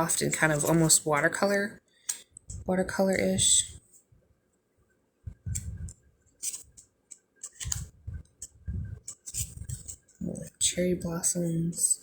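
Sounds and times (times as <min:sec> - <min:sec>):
playing cards sliding and tapping: 0:05.5 - 0:10.0.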